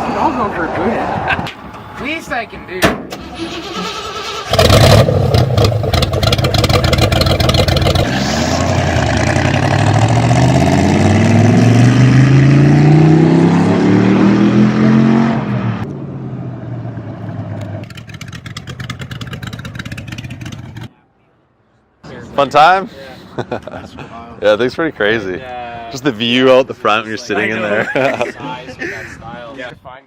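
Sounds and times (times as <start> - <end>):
car engine accelerating: 3.2 - 20.9.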